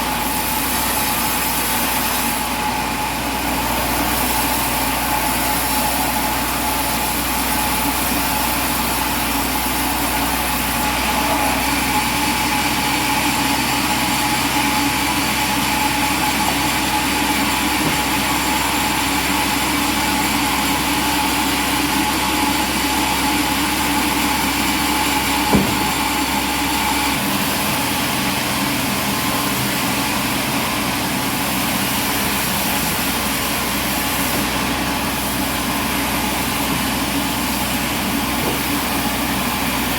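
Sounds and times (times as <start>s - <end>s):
engine running: 0.0s - 39.9s
sharp knock: 25.5s - 26.1s.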